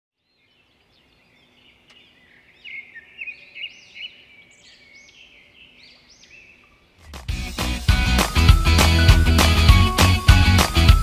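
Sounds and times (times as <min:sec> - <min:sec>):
songbirds singing and chirping: 0:00.2 - 0:07.4.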